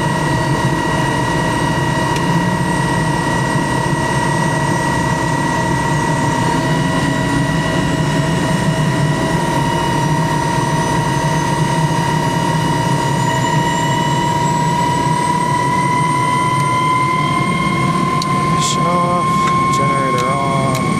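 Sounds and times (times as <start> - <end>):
helicopter turbine whine: 0.0 - 20.9.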